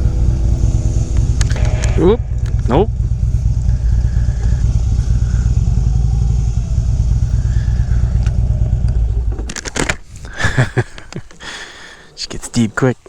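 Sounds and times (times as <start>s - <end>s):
motorcycle engine rumbling: 0.0s - 12.2s
sharp clicks and scrapes: 8.2s - 11.4s.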